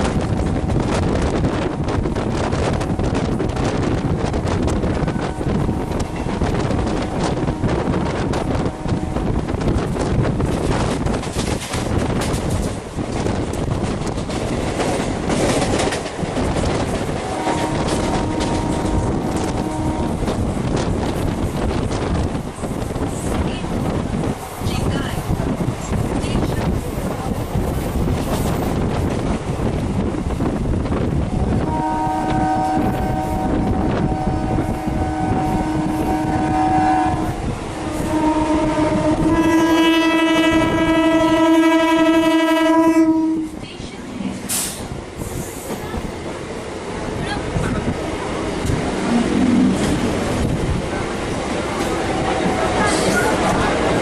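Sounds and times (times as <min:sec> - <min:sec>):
train wheels clattering on rails: 0:00.0 - 0:42.4, 0:43.4 - 0:54.0
train horn tone: 0:04.8 - 0:09.6, 0:17.1 - 0:20.8, 0:31.6 - 0:43.6.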